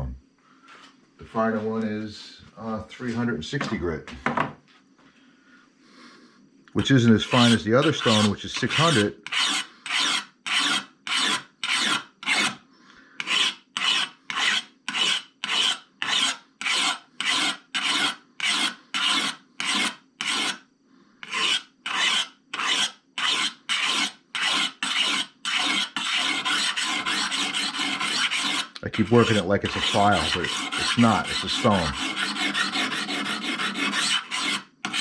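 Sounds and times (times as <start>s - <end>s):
hone scraping steel blade: 6.8s - 12.6s, 13.2s - 20.6s, 21.2s - 35.0s.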